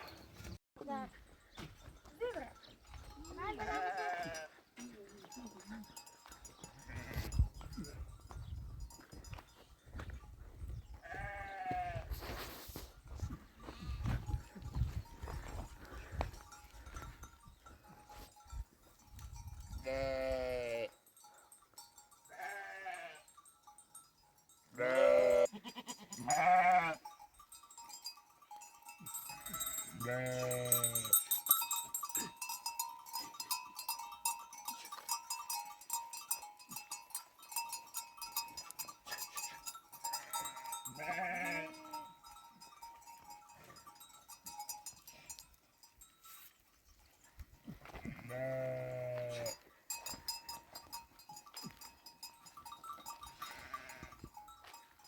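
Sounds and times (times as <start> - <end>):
animal bells clinking: 0.0 - 11.6, 13.1 - 55.0
sheep bleating: 3.5 - 4.6, 11.0 - 12.1, 19.8 - 20.9, 22.3 - 23.3, 24.8 - 27.0, 30.0 - 31.1, 40.2 - 42.0, 48.0 - 49.6.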